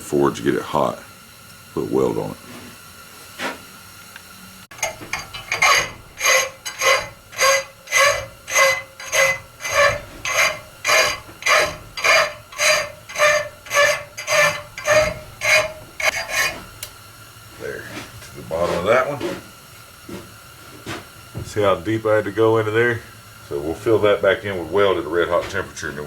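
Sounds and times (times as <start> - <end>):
hand file rasping on steel: 4.7 - 16.8.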